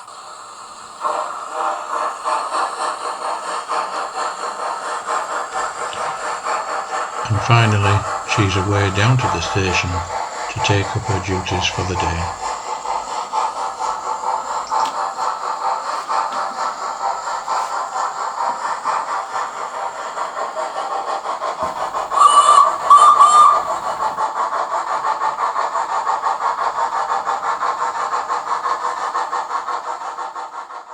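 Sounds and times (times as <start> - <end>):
steam locomotive exhaust chuffs: 0.0 - 30.9
train whistle blasts: 21.6 - 24.2.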